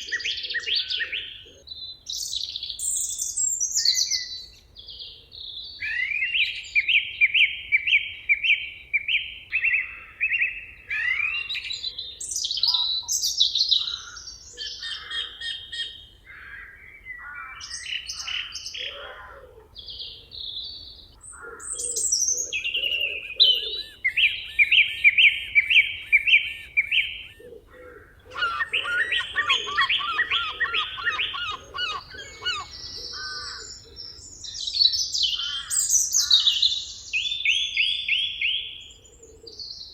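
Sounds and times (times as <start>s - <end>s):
songbirds singing: 0.0s - 39.9s
low pulsing bird notes: 19.8s - 36.4s.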